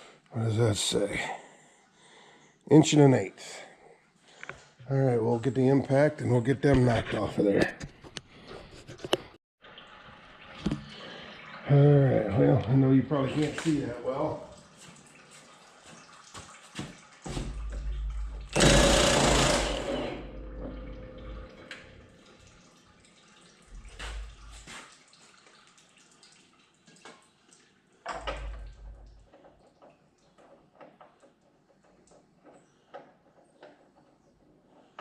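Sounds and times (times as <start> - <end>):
impact wrench bursts: 18.5 - 20.5.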